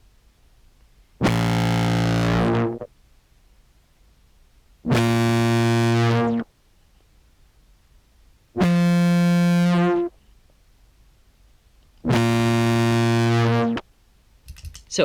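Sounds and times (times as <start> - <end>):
low clarinet notes through fuzz: 1.2 - 2.9, 4.9 - 6.5, 8.6 - 10.1, 12.0 - 13.8.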